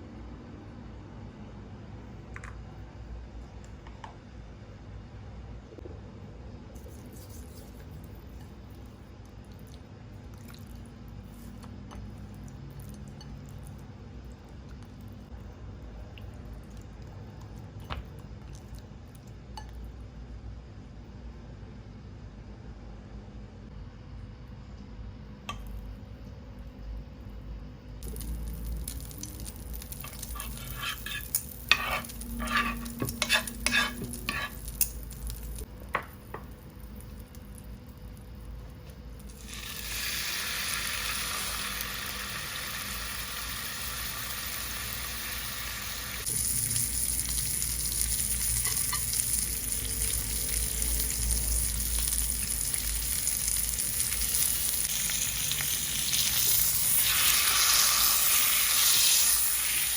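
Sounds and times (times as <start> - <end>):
beef sizzling in a pan: 28.1 - 35.6, 39.3 - 59.9.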